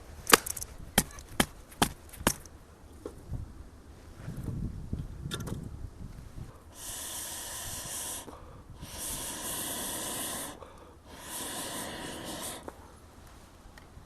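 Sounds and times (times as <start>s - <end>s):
person blowing air: 6.7s - 12.8s.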